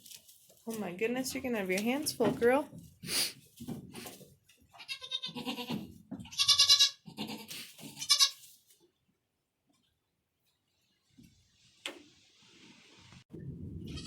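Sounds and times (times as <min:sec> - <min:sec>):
goat bleating: 0:04.7 - 0:08.5.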